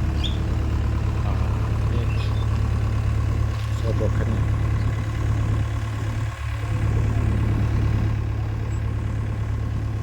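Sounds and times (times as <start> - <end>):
excavator diesel engine running: 0.0 - 10.0.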